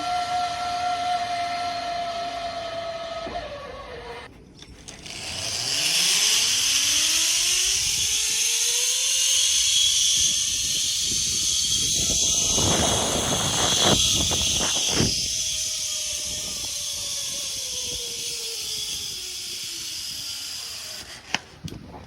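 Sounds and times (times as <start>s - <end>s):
zip line pulley whine: 0.0s - 21.8s
rough rumbling: 10.2s - 18.1s.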